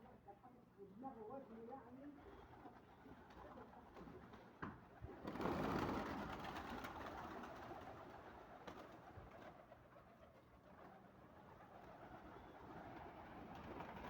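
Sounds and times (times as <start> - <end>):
birds cooing softly: 7.6 - 14.0.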